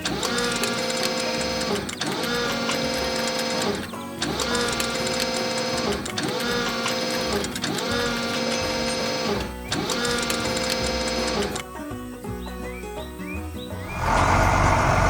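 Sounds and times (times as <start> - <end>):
small motor whirring: 0.0 - 11.7.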